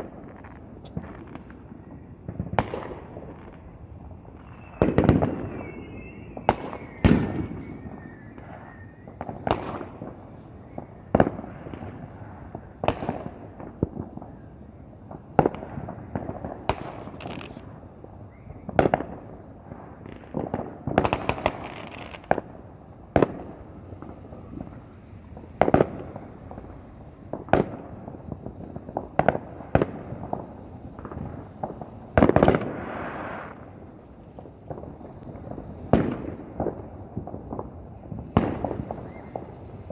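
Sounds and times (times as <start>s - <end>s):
fireworks banging: 0.0s - 39.9s
fireworks crackling: 0.0s - 39.9s
faint wavering whistle: 3.6s - 9.4s, 10.4s - 11.2s, 18.2s - 18.8s, 38.8s - 39.9s.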